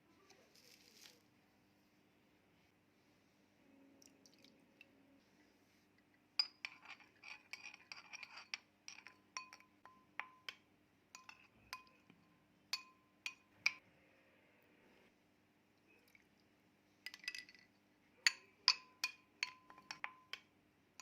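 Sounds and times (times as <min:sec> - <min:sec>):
utensil clinking against glass bowl: 0:06.4 - 0:13.8, 0:17.1 - 0:20.5.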